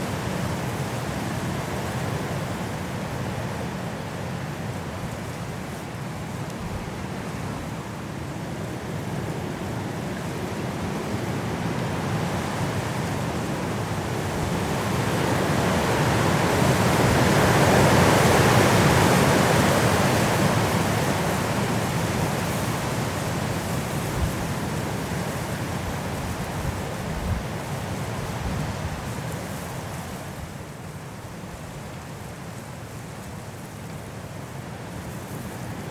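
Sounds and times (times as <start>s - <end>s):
wind blowing through trees: 0.0s - 35.9s.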